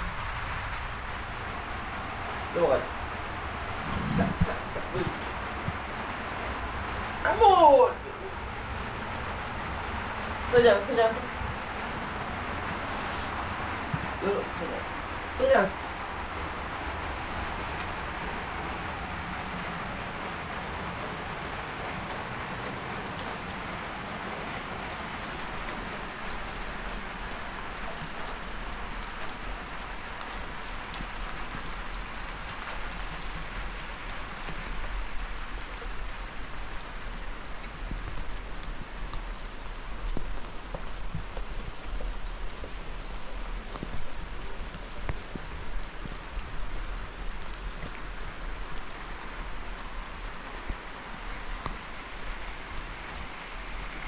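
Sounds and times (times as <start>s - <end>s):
raindrops ticking on a surface: 0.0s - 54.0s
steady rain falling: 0.0s - 54.0s.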